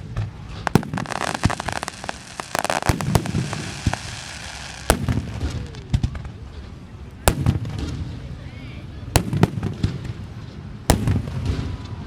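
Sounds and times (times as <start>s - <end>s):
rapid small firework pops: 0.0s - 8.2s, 9.2s - 12.0s
firework shells bursting: 0.2s - 8.2s.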